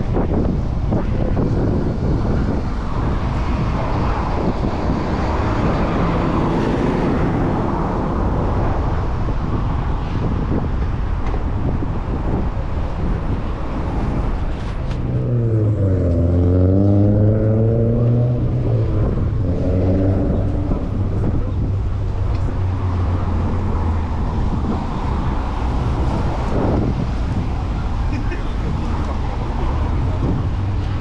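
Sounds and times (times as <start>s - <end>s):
city traffic: 0.0s - 31.0s
wind rumble: 0.0s - 31.0s.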